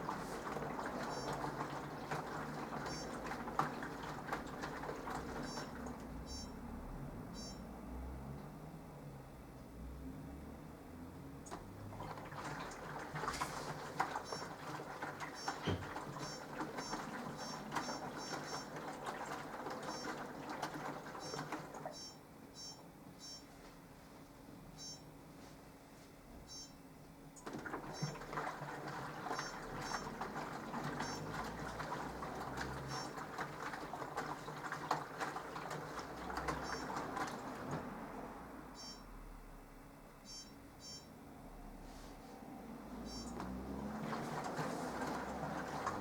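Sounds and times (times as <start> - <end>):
washing machine water swishing: 0.0 - 7.3, 11.3 - 22.8, 27.4 - 39.0, 41.6 - 46.0.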